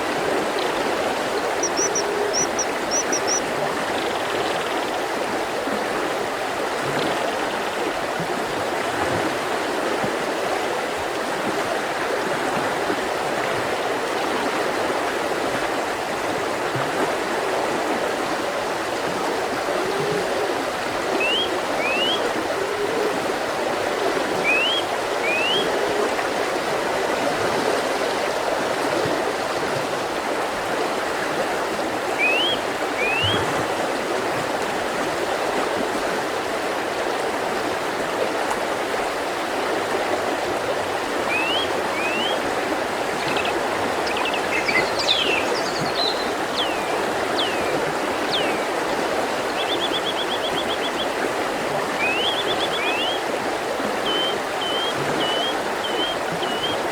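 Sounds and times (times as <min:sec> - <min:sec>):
river rushing over rocks: 0:20.5 - 0:56.9.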